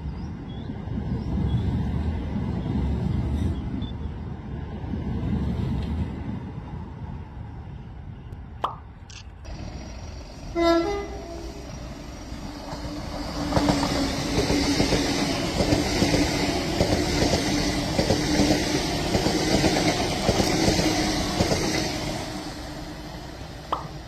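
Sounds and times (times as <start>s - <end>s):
train wheels clicking over rail joints: 9.1s - 24.0s
train running rumble: 9.5s - 24.0s.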